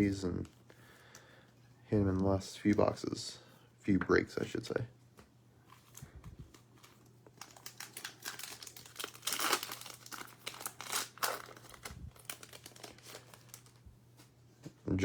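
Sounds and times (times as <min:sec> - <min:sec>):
card pack wrapper crinkling and tearing: 0:05.7 - 0:13.8.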